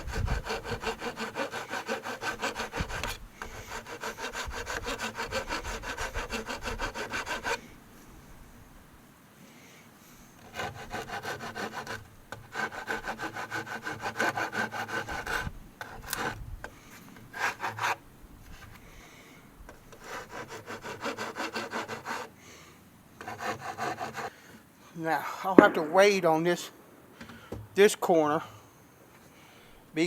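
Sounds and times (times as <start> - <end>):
wood smoothed by hand: 0.0 - 7.6, 10.4 - 16.4, 17.3 - 18.8, 19.9 - 22.3, 23.2 - 24.3.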